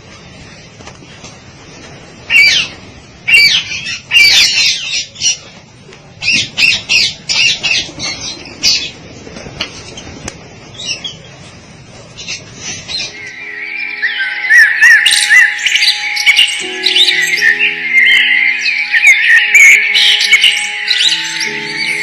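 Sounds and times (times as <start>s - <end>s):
birds squawking: 12.2s - 22.0s.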